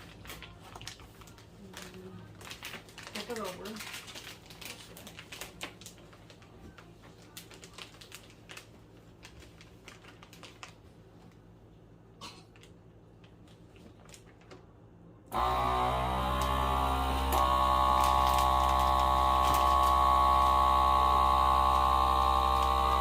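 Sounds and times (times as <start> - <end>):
vacuum pump motor hum: 15.3 - 23.0.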